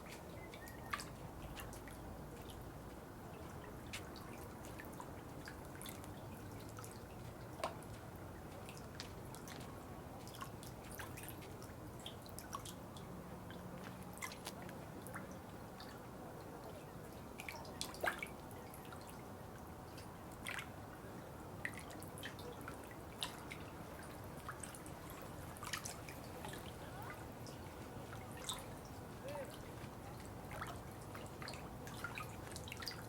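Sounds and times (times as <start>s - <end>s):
low wash of water: 0.0s - 33.0s
water dripping: 21.6s - 33.0s.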